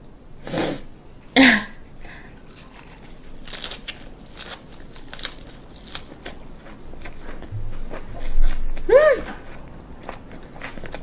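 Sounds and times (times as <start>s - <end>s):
crisp chewing crunches: 2.3s - 8.6s, 9.3s - 11.0s.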